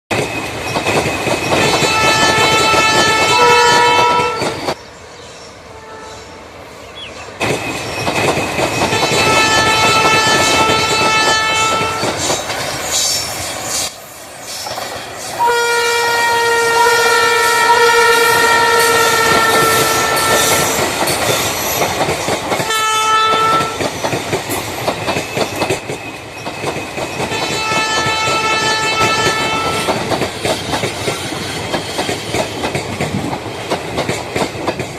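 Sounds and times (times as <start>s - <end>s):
train running with wheel clatter: 0.1s - 34.9s
train horn blasts: 1.8s - 4.7s, 5.7s - 6.5s, 8.9s - 12.3s, 15.4s - 20.9s, 22.6s - 23.8s, 27.3s - 30.1s.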